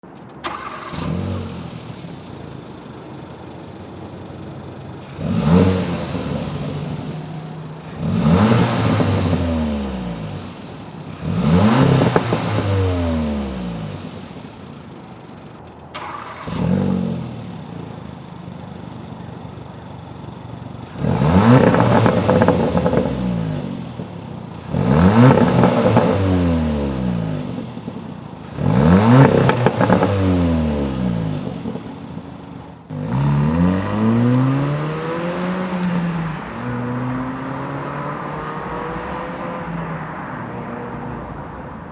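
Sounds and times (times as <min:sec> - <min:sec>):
car engine idling and revving: 0:00.0 - 0:41.9.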